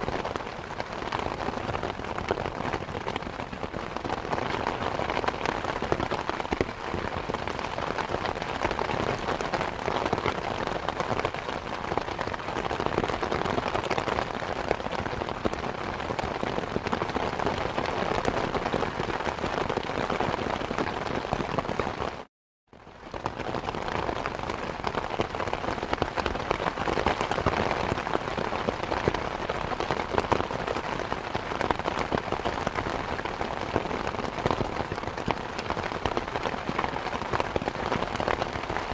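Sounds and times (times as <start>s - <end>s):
steady rain patter: 0.0s - 38.9s.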